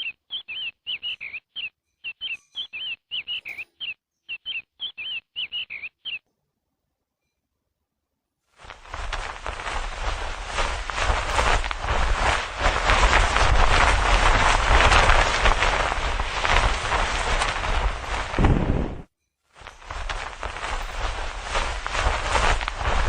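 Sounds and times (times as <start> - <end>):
bird chirping: 0.0 - 6.3
loud rushing noise: 8.7 - 19.1.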